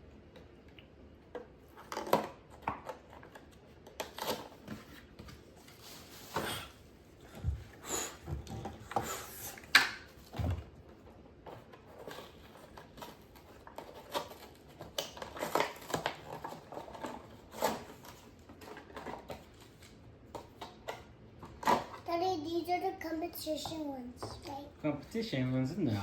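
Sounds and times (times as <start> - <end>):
plastic packaging clicking and crackling: 11.6 - 22.0.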